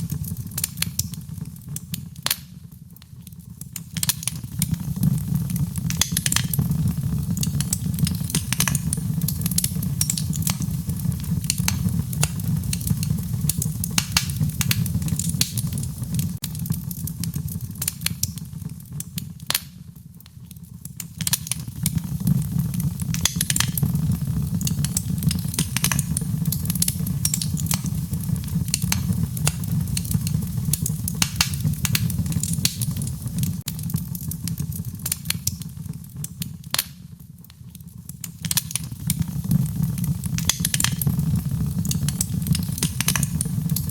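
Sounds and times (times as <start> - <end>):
wood fire crackling and popping: 0.0 - 43.9
low rumble: 4.5 - 17.7, 21.7 - 34.0, 39.2 - 43.9.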